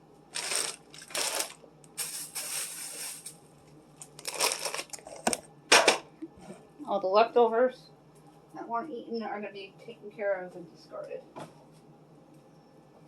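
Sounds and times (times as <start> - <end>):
containers rustling and scraping: 0.4 - 3.4, 4.1 - 6.6.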